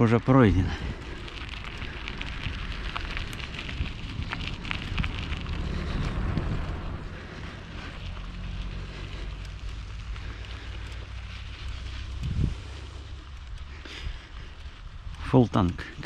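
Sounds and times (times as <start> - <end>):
bicycle rumble: 0.0 - 16.0
wind noise on microphone: 0.6 - 8.1, 11.6 - 13.0.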